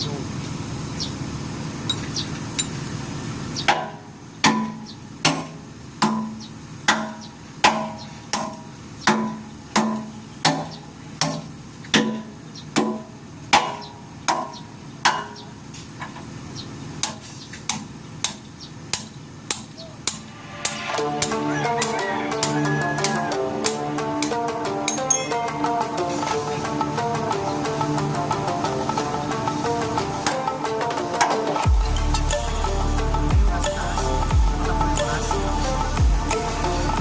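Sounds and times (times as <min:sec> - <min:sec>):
hammer striking steel: 0:03.7 - 0:15.4, 0:17.0 - 0:25.8.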